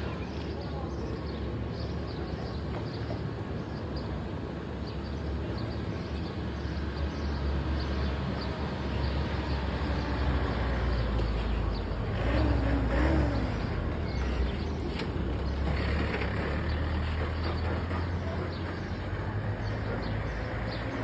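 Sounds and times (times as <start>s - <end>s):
electric train rumbling: 10.2s - 21.0s.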